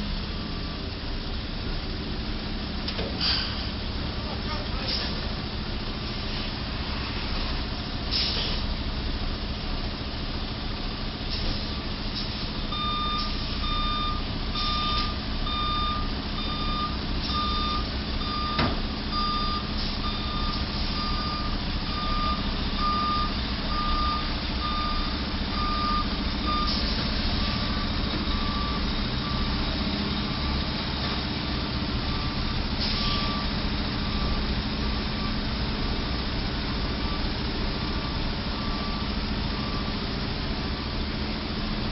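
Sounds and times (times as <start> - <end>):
truck reversing alarm beeping: 0.0 - 1.4, 10.2 - 41.9
engine idling: 0.0 - 41.9.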